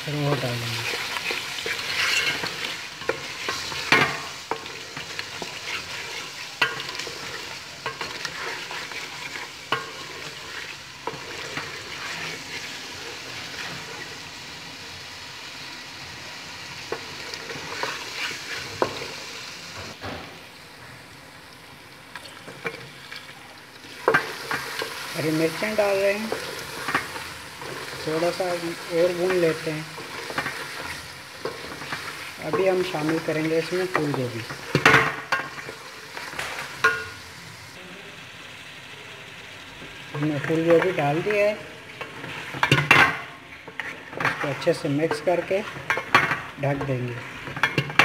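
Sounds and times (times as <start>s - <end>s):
masala sizzling in oil: 0.0s - 48.0s
spatula scraping a metal pot: 0.8s - 14.1s, 41.9s - 46.4s.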